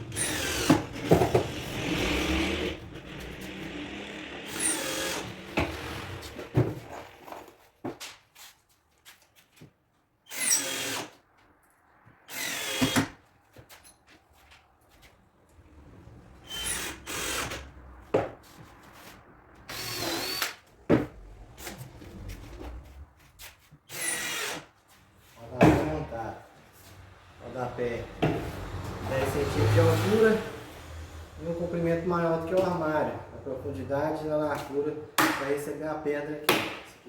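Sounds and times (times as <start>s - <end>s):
power drill driving screws: 0.0s - 7.6s, 10.3s - 11.2s, 12.3s - 13.2s, 16.4s - 17.8s, 19.7s - 22.8s, 23.9s - 24.7s.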